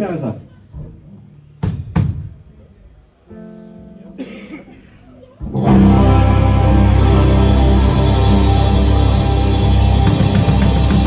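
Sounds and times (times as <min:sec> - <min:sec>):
electric guitar chord ringing: 0:05.5 - 0:11.0
live band playing loud: 0:05.5 - 0:11.0.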